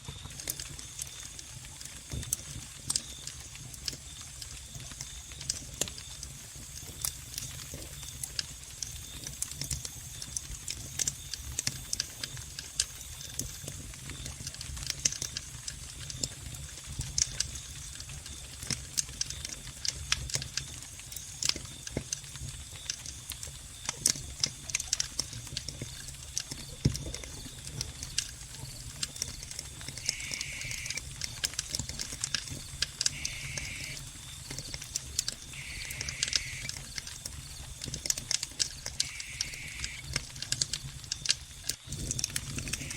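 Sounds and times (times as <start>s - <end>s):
wood fire crackling and popping: 0.0s - 42.9s
crickets chirping: 15.2s - 42.9s.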